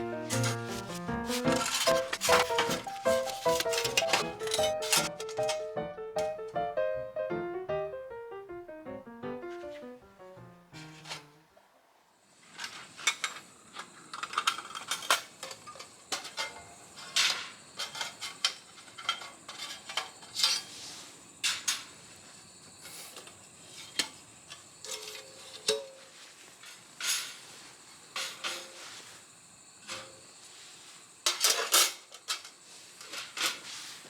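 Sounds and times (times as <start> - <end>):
metal pieces clinking: 0.3 - 5.7.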